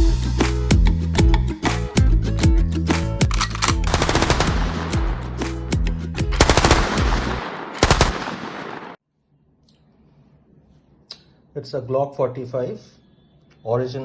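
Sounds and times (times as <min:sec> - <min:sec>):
music with steady bass line: 0:00.0 - 0:07.4
automatic gunfire: 0:03.9 - 0:04.9, 0:06.4 - 0:09.0.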